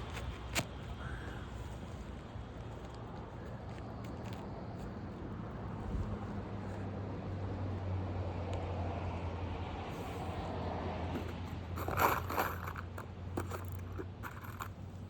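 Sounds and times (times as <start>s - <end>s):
scrape or click: 11.2s - 14.8s.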